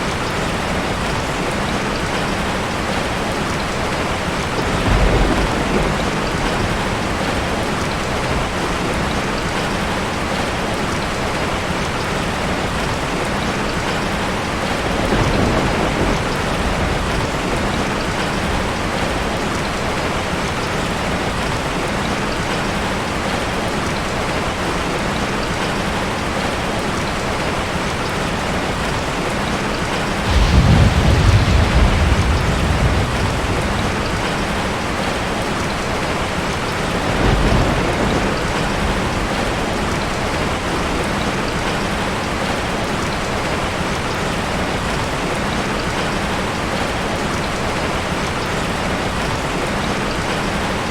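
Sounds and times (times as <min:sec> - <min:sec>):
heavy rain: 0:00.0 - 0:50.9
thunder rumbling: 0:02.8 - 0:10.8, 0:13.9 - 0:21.4, 0:29.1 - 0:42.6.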